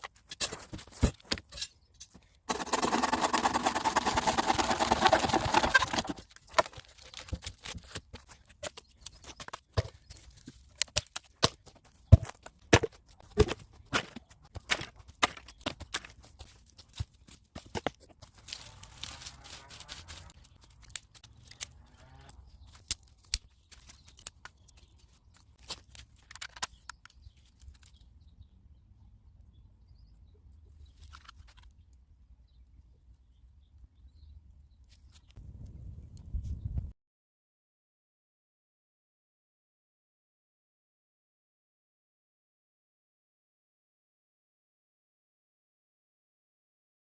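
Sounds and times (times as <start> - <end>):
rustling: 0.0 - 21.8
campfire wood crackling: 17.6 - 21.8.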